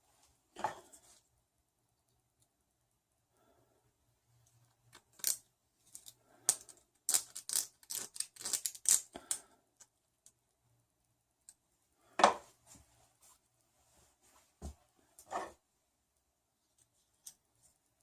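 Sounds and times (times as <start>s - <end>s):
zip ties ratcheting: 6.0s - 9.4s.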